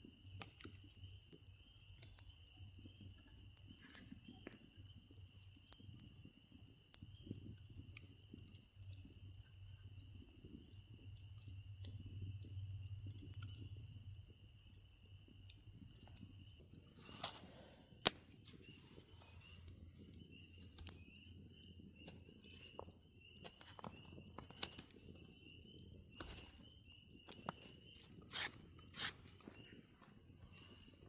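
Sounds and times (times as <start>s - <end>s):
sharp cracks and clicks: 17.2s - 19.1s, 22.0s - 29.7s.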